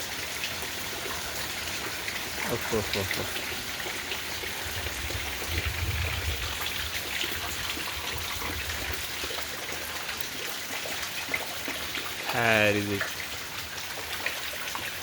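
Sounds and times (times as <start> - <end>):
rain patter: 0.0 - 15.0.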